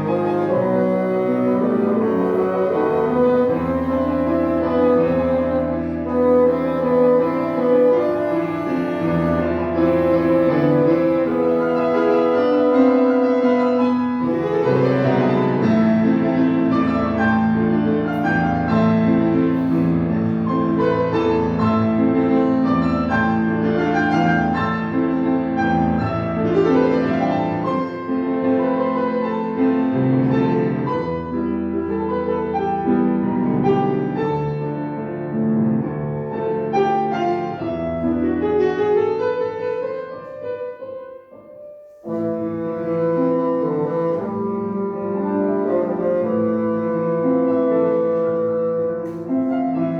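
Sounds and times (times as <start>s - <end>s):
bassoon melody: 0.0s - 35.1s, 42.0s - 49.9s
piano accompaniment: 0.0s - 49.9s.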